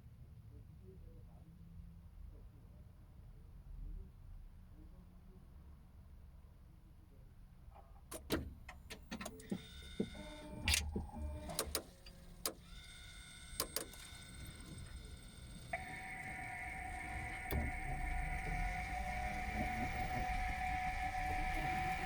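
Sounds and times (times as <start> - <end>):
steady whine: 10.2 - 22.0.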